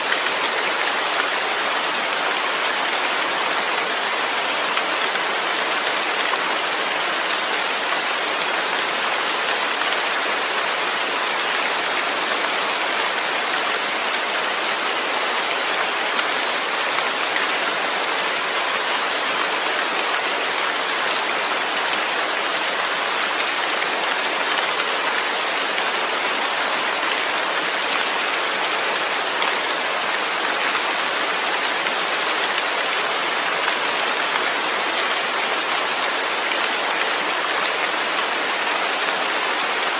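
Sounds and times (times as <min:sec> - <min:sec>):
steady rain on surfaces: 0:00.0 - 0:39.9.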